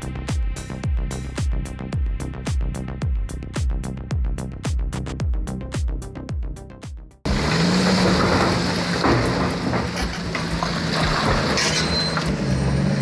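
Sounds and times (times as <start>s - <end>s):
electronic music with thumping beat: 0.0s - 13.0s
knocks and clatter: 7.3s - 12.9s
excavator diesel engine drone: 7.3s - 13.0s.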